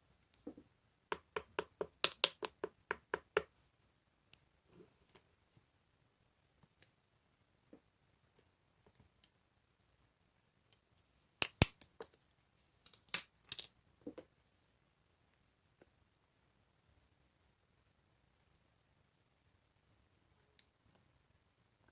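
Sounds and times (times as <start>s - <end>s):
sharp clicks and taps: 0.3s - 3.5s.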